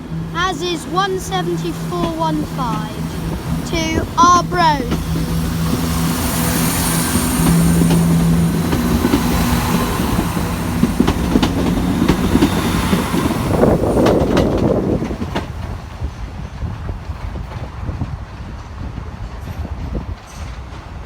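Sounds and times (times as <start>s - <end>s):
diesel train engine drone: 0.0s - 21.0s
train wheels clacking over rail joints: 1.5s - 21.0s.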